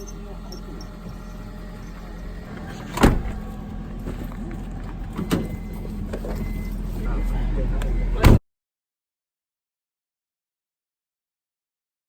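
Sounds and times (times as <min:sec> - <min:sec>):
vehicle running hum: 0:00.0 - 0:08.4
loud sharp thump: 0:02.9 - 0:03.4.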